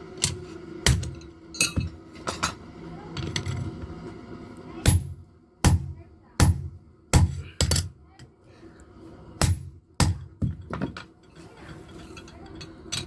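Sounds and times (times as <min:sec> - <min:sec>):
hammer striking hot metal: 0:04.8 - 0:07.9, 0:09.4 - 0:10.6.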